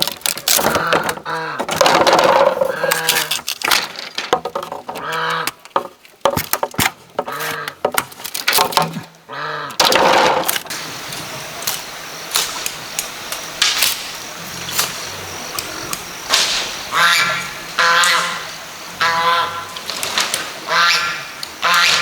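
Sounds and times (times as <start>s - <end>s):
ducks quacking: 0.6s - 1.8s, 5.0s - 5.6s, 9.3s - 9.8s, 13.6s - 22.0s.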